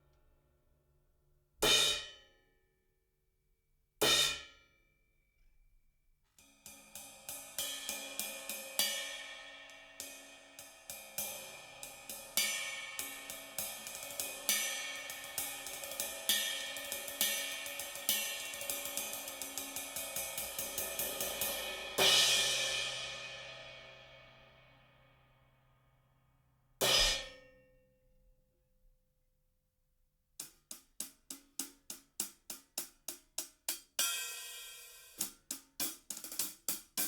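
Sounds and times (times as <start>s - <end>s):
cymbals struck: 6.7s - 24.5s, 26.8s - 27.4s
cymbal crash ringing out: 10.9s - 24.5s.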